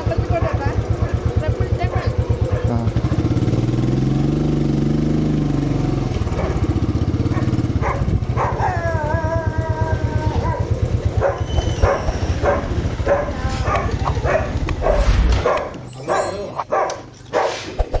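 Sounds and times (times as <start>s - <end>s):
dog barking: 1.9s - 2.8s, 6.3s - 8.8s, 10.4s - 17.7s
motorcycle engine throbbing: 9.5s - 14.9s.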